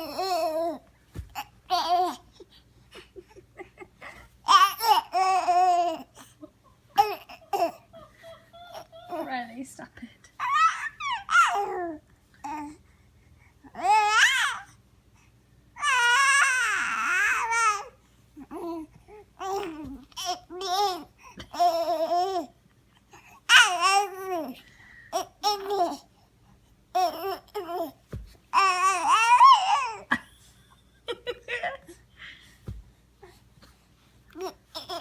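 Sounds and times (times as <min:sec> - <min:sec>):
baby babbling and squealing: 0:10.4 - 0:12.6.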